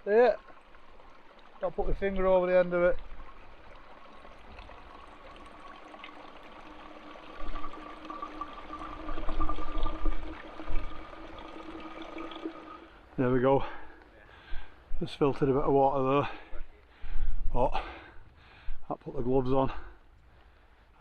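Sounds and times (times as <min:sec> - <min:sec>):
water pouring into a bottle: 0:00.0 - 0:13.8
stream running: 0:00.0 - 0:20.0.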